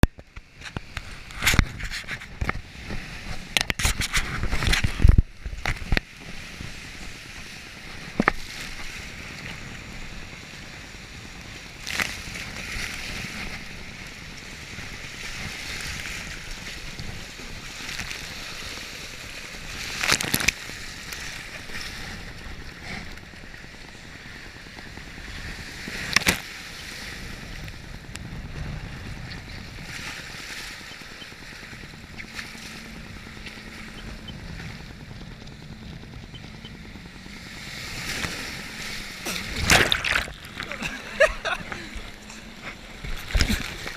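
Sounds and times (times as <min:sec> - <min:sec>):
water and wind rushing: 0:00.0 - 0:43.9
sharp splashes or knocks: 0:39.3 - 0:40.8.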